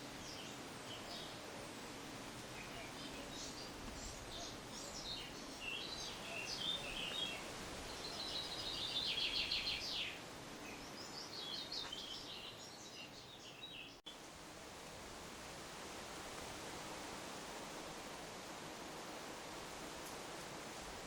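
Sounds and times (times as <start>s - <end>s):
outdoor hiss: 0.0s - 21.0s
birdsong with trills: 2.6s - 14.2s.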